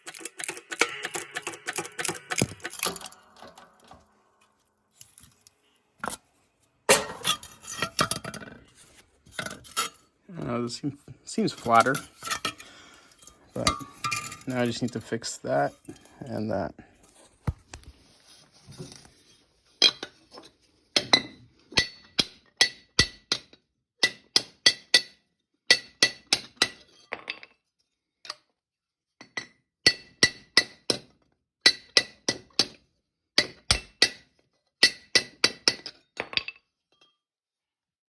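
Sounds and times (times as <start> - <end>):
hammer striking steel pipe: 0.4 - 4.0.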